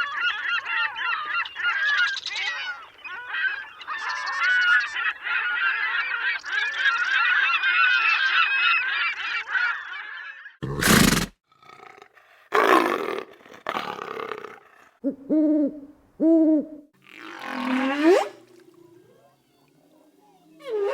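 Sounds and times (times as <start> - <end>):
flock of birds calling: 0.0 - 10.6
pitched hooting calls: 15.0 - 20.9
rough noisy animal calls: 17.0 - 20.9.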